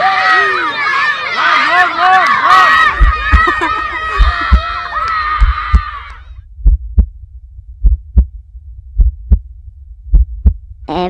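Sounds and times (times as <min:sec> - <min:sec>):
babble of voices: 0:02.6 - 0:05.1
heartbeat thumps: 0:02.9 - 0:10.9.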